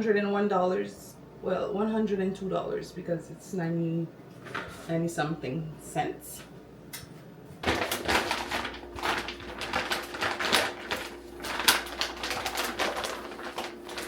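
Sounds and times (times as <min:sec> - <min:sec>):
grocery bag rustling: 0:07.6 - 0:14.0.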